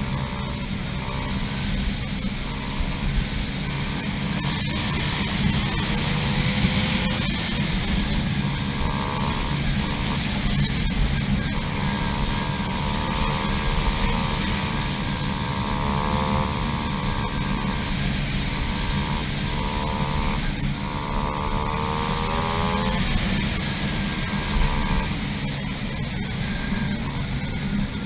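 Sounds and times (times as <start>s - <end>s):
constant rushing noise: 0.0s - 28.0s
dirt bike engine buzzing: 0.0s - 28.0s.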